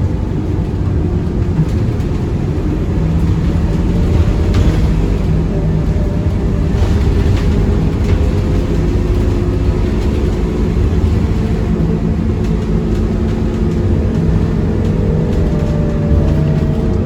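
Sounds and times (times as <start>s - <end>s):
bus diesel engine running: 0.0s - 17.0s
road rumble: 0.0s - 17.0s.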